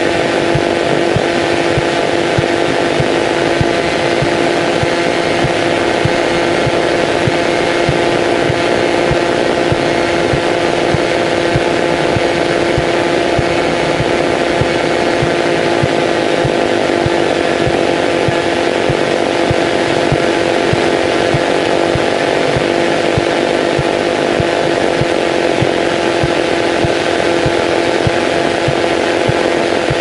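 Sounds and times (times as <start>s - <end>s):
airplane engine and propeller: 0.0s - 30.0s.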